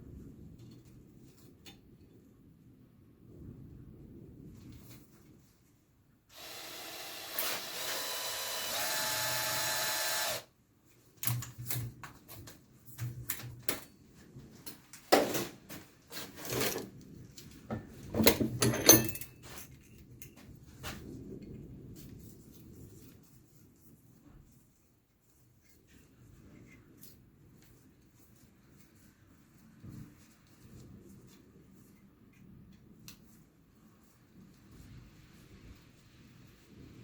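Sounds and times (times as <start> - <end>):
turbine duster whirring: 6.3 - 10.4.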